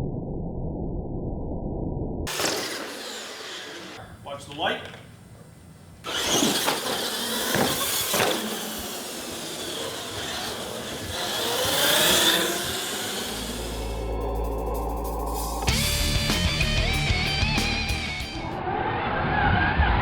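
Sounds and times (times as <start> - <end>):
rc truck motors whining: 2.3 - 15.0.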